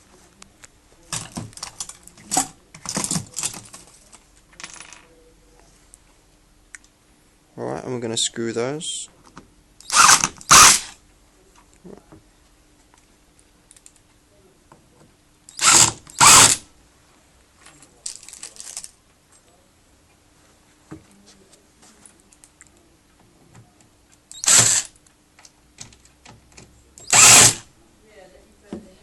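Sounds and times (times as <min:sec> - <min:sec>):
power drill driving screws: 0:09.8 - 0:11.0, 0:15.5 - 0:16.7, 0:24.3 - 0:24.9, 0:27.0 - 0:27.7.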